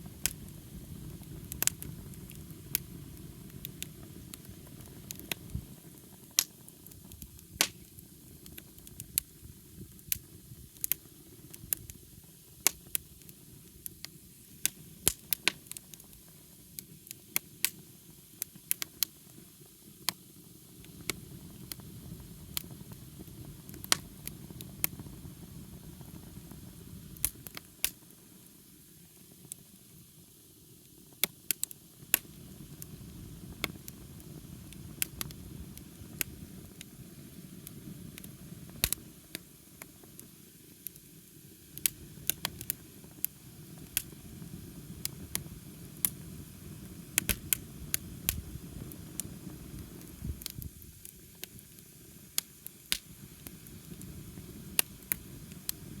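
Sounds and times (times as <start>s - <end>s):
low rush of flames: 0.0s - 16.0s, 32.1s - 40.2s, 40.9s - 56.0s
campfire crackling and popping: 0.0s - 30.1s, 30.8s - 56.0s.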